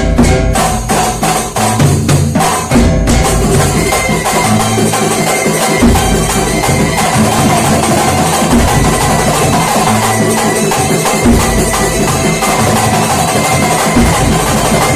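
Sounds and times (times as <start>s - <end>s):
frame drums and hand percussion: 0.0s - 14.9s.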